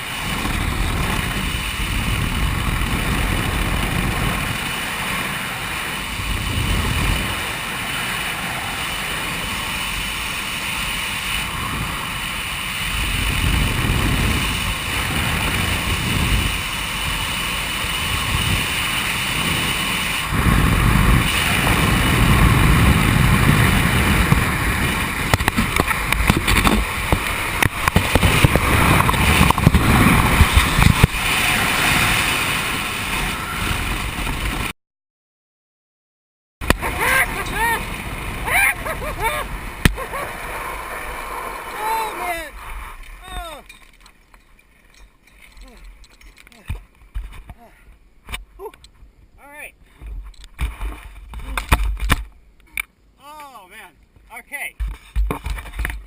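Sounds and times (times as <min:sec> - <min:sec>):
wind buffeting microphone: 0:00.0 - 0:10.4, 0:11.0 - 0:34.7, 0:36.6 - 0:45.0.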